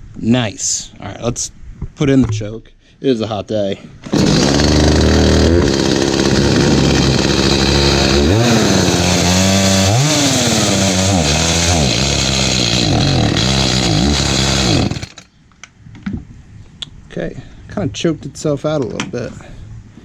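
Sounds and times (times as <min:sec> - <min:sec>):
chainsaw engine revving: 0:04.0 - 0:15.3.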